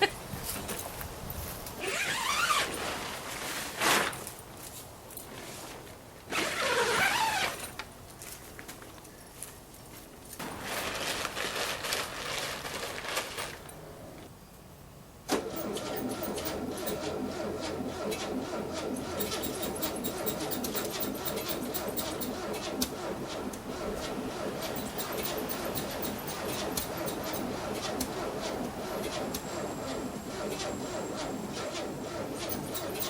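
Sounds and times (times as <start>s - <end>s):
car engine cranking: 15.3s - 33.0s
car engine running: 15.6s - 33.0s.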